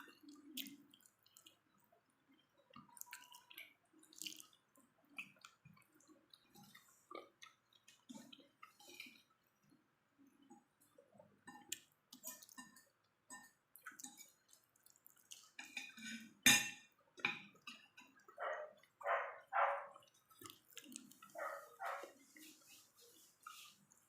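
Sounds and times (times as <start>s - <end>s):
wet chewing and mouth smacks: 0.0s - 9.8s, 10.4s - 15.9s, 17.6s - 24.0s
small dog barking: 18.4s - 20.0s, 21.4s - 22.2s.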